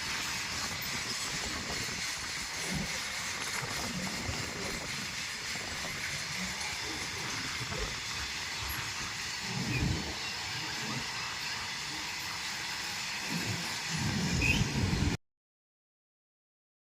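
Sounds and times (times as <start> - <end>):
train rushing and rumbling: 0.0 - 15.2.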